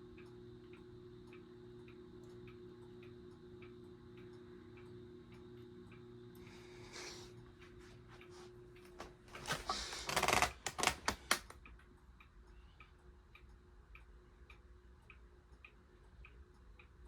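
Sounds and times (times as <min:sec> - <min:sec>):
ceiling fan humming: 0:00.0 - 0:17.0
light ticking of fan: 0:00.0 - 0:17.0
loud clicks and rustling: 0:09.4 - 0:11.6.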